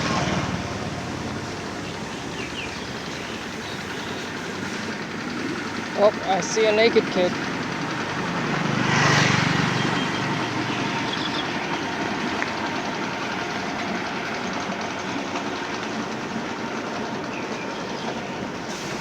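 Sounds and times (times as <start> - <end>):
engine passing close by: 0.0 - 14.6
traffic rumble and hiss: 0.0 - 19.0.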